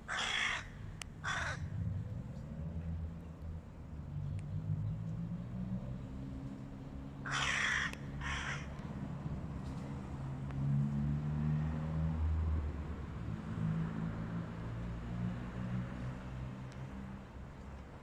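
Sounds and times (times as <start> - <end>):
crow cawing: 0.1 - 1.7, 7.2 - 8.8.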